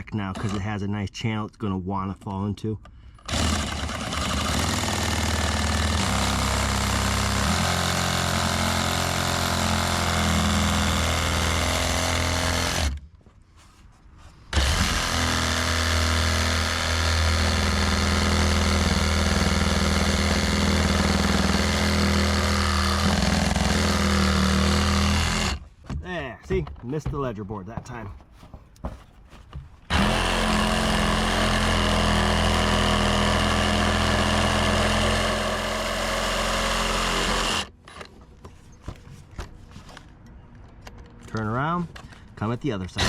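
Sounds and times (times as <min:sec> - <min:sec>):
reciprocating saw cutting wood: 0:03.3 - 0:13.0, 0:14.5 - 0:25.6, 0:29.9 - 0:37.8.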